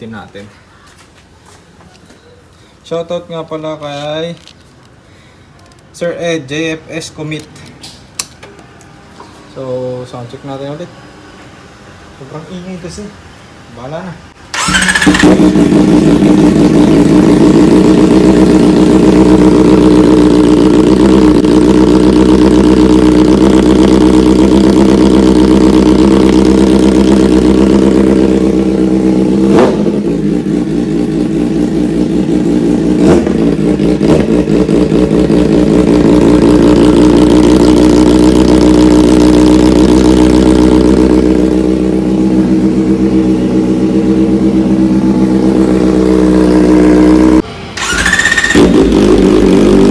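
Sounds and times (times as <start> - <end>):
sharp exhaust cracks: 14.4 - 25.0, 47.3 - 49.7
loud motorcycle engine: 14.5 - 49.9.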